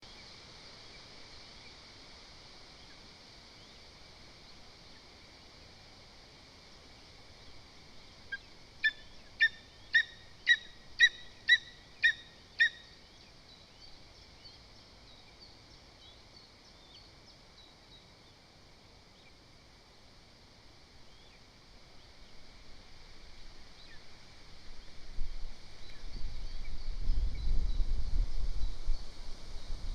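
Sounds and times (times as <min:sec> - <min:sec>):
eagle calling: 0:08.3 - 0:12.9
low wind noise: 0:20.3 - 0:29.9.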